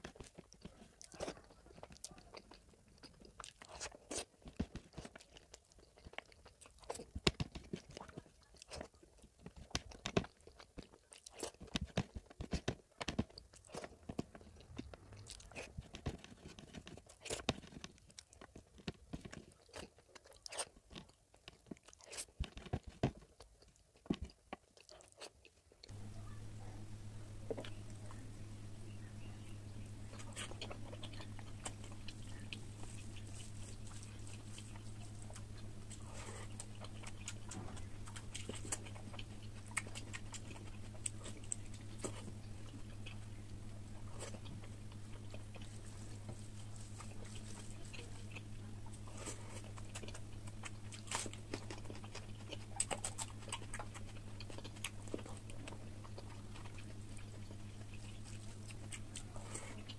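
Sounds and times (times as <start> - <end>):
person chewing wetly: 0.0 - 26.7, 27.3 - 59.9
fingers squishing rice: 0.0 - 59.9
steady low hum: 25.8 - 59.9.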